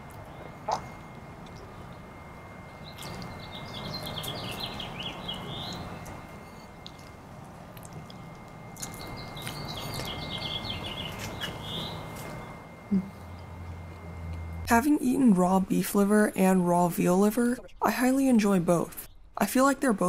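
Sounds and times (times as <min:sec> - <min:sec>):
faint background hum: 0:00.0 - 0:20.0
songbird singing: 0:00.1 - 0:07.1, 0:08.1 - 0:13.8.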